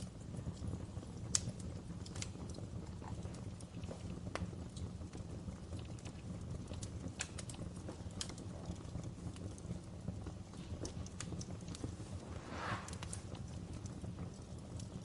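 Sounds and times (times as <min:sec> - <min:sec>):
wood fire crackling: 0:00.0 - 0:15.0
rush of noise: 0:12.0 - 0:13.5.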